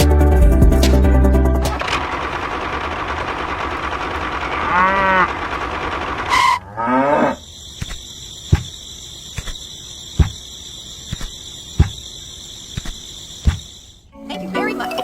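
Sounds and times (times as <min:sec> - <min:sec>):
cow mooing: 0:04.5 - 0:05.4, 0:06.3 - 0:07.4.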